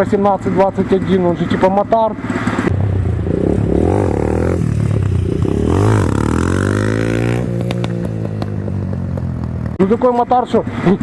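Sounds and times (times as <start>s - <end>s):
pit bike engines revving: 2.2s - 11.0s.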